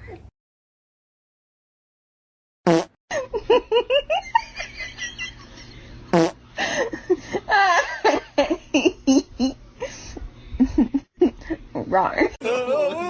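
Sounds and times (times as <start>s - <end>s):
person giggling: 12.4s - 13.0s.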